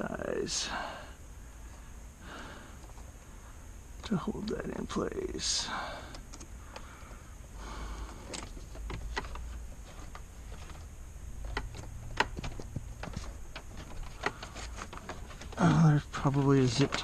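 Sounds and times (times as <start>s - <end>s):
clicks and knocks of car parts: 8.0s - 15.6s.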